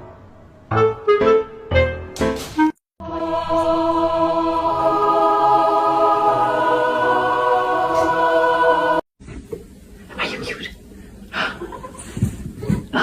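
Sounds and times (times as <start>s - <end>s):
choir singing a held chord: 3.0s - 9.1s.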